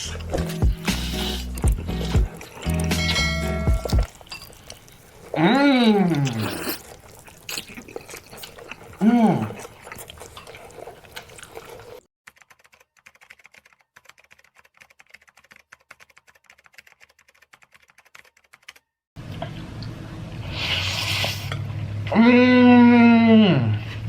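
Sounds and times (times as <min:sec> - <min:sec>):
wet chewing clicks: 0:00.1 - 0:18.6.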